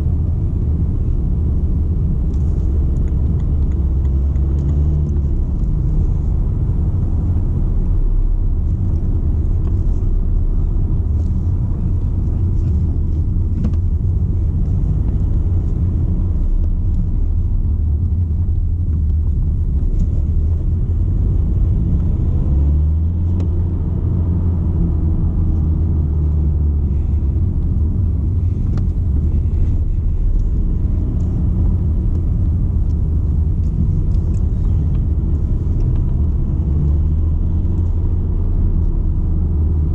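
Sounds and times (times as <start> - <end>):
diesel car engine driving: 0.0 - 39.9
road noise: 0.0 - 39.9.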